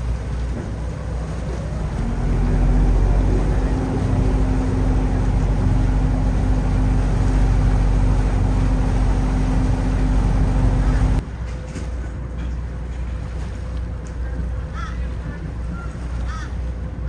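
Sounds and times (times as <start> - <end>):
ferry engines droning: 0.0 - 11.2
steady hum: 1.9 - 11.2.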